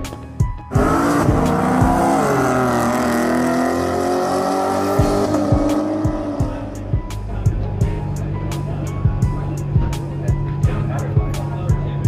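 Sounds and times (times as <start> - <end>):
race car engines at high revs: 0.7 - 6.9.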